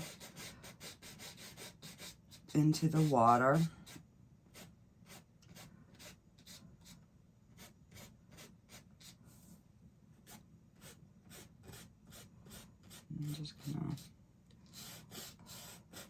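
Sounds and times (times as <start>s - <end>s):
paintbrush strokes on canvas: 0.0s - 7.0s.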